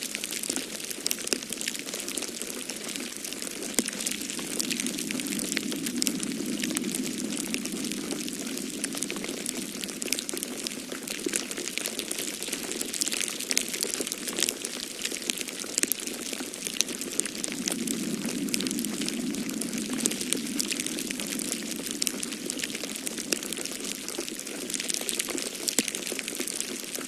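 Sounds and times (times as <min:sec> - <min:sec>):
wood fire crackling: 0:00.4 - 0:27.0
wind rushing: 0:02.9 - 0:12.0, 0:16.0 - 0:25.2.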